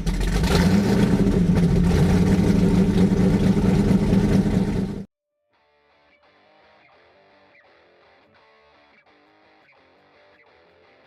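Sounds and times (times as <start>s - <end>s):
engine running loudly: 0.0s - 5.1s
faint guitar music: 5.4s - 11.0s.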